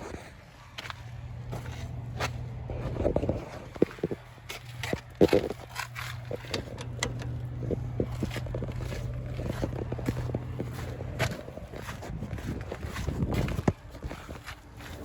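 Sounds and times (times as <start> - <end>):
small tractor engine running: 0.8 - 15.0
knocks clicks and scrapes: 2.8 - 14.4.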